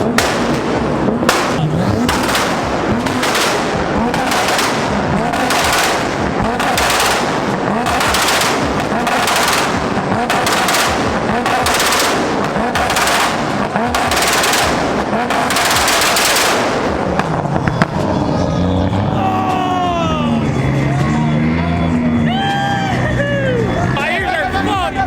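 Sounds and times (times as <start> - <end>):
car exhaust pops and bangs: 0.0 - 18.2
engine with gliding pitch: 0.0 - 25.0.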